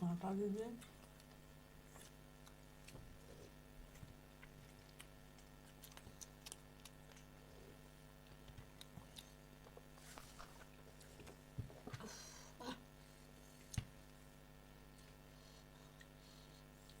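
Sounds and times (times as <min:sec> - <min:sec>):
low steady hum: 0:00.0 - 0:17.0
small eating clicks: 0:00.7 - 0:11.4
faint chewing: 0:00.8 - 0:12.2, 0:14.9 - 0:17.0.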